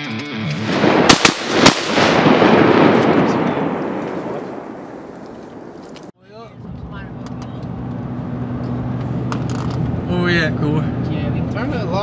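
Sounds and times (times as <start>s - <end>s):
shotgun shots: 0.6s - 5.8s.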